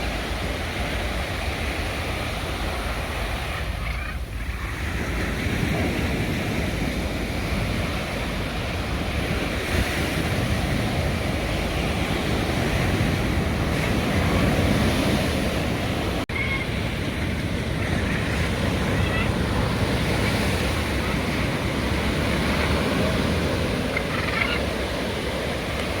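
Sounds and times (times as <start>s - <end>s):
ocean waves washing in: 0.0s - 26.0s
wind buffeting microphone: 0.0s - 26.0s.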